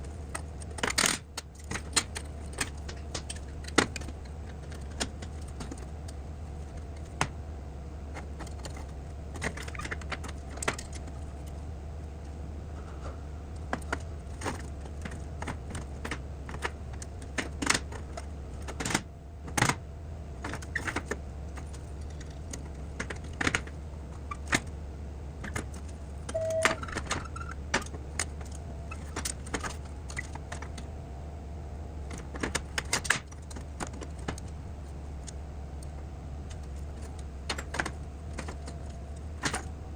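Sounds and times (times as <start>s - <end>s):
steady low hum: 0.0s - 39.9s
brief squeak: 26.4s - 27.6s.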